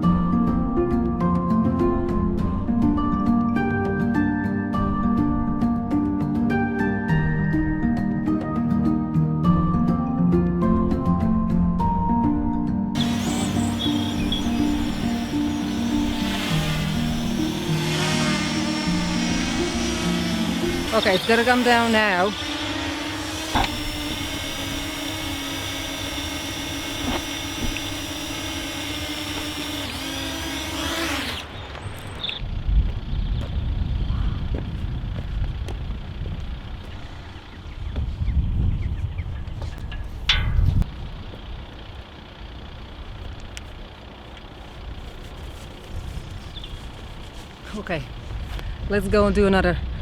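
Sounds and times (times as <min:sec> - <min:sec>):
drone propellers whining: 0:13.0 - 0:32.4
wind buffeting microphone: 0:31.8 - 0:41.7.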